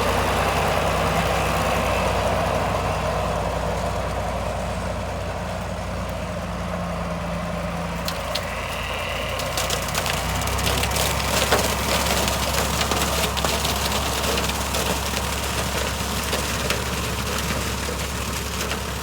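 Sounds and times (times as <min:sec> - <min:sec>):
tractor engine running: 0:00.0 - 0:19.0
corn stalks crackling and snapping: 0:07.9 - 0:19.0.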